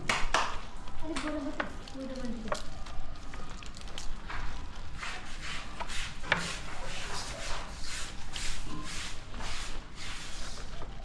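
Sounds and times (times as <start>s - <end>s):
rubbing strokes: 4.9s - 10.9s.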